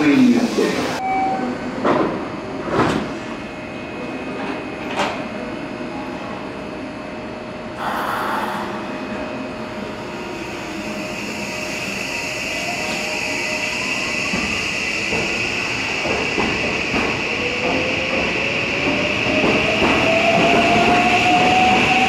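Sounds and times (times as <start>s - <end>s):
train high whine: 0.0s - 22.0s
air hiss: 7.8s - 8.9s.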